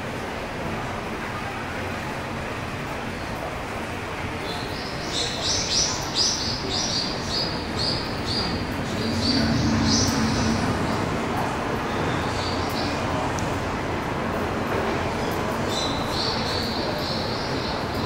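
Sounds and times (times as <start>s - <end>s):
low background rumble: 7.7s - 13.8s.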